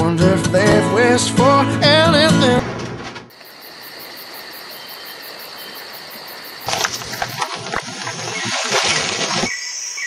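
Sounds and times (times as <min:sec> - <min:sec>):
insect chirr: 0:03.3 - 0:10.0.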